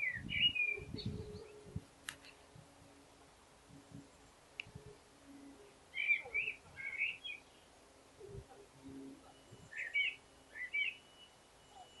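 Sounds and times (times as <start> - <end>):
songbird warbling: 5.6 - 12.0.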